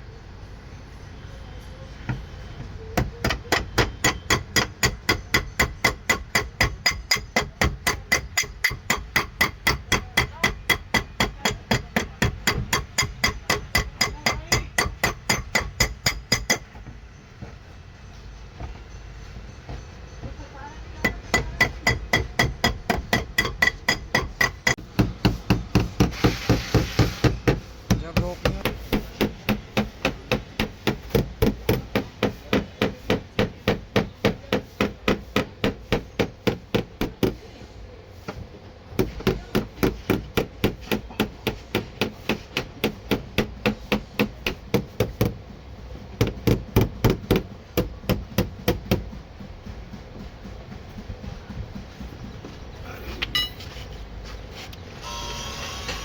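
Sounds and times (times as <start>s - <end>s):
hammer tapping sheet metal: 3.0s - 16.8s, 21.0s - 37.6s, 38.9s - 45.5s, 46.1s - 49.6s.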